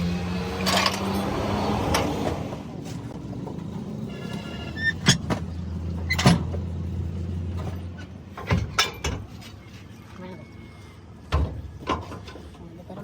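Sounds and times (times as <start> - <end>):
low engine hum: 0.0 - 8.4
metallic clanks and knocks: 7.6 - 9.3.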